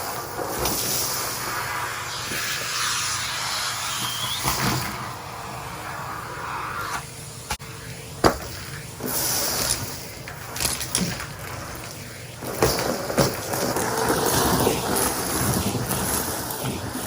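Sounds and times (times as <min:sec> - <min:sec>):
vacuum cleaner running: 0:00.0 - 0:17.0
debris knocking and rattling in hose: 0:08.2 - 0:17.0.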